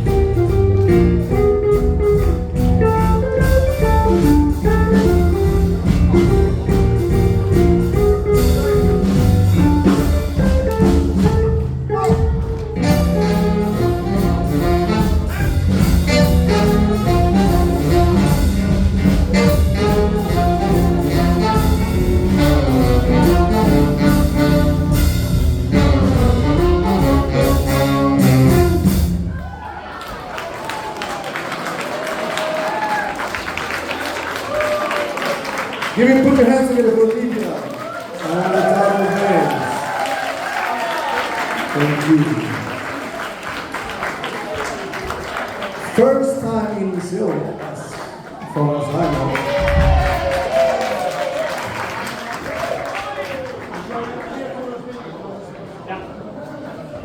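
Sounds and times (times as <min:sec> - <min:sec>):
live jazz band playing: 0:00.0 - 0:29.6, 0:49.0 - 0:50.8.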